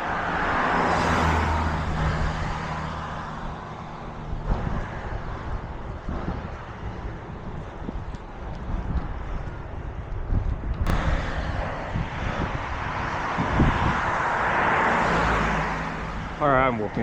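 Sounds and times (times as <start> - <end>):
vehicle driving past: 0.0 - 7.0, 10.9 - 16.4.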